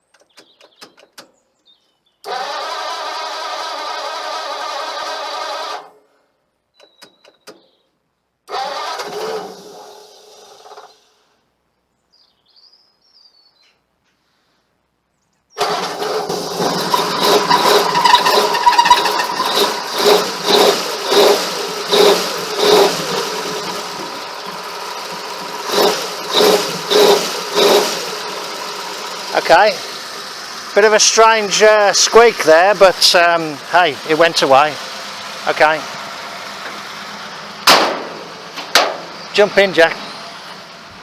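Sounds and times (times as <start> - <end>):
engine starter clicks: 0.1 - 1.4, 2.2 - 6.0, 8.5 - 11.2, 15.6 - 40.7
engine cranking: 2.2 - 6.0, 8.5 - 11.2, 15.6 - 41.0
engine running and revving: 15.6 - 41.0.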